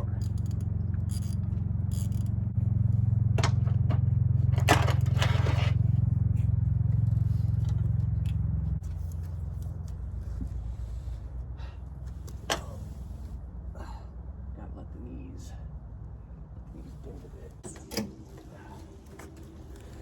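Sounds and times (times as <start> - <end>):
steady low hum: 0.0 - 20.0
metal bolt scraping and clicking: 4.6 - 5.8.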